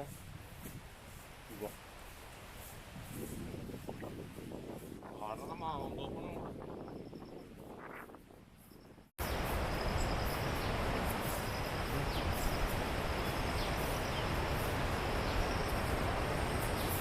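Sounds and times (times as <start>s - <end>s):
faint insect trill: 8.6s - 17.0s
waterfall roaring: 9.3s - 17.0s.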